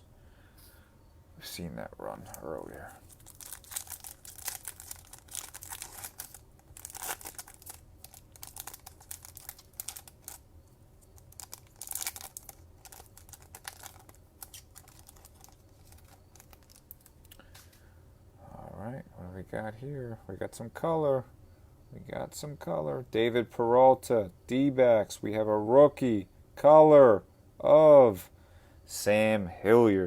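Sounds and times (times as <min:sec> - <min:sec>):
foil wrapper crinkling and tearing: 0:02.3 - 0:10.4, 0:11.0 - 0:17.4.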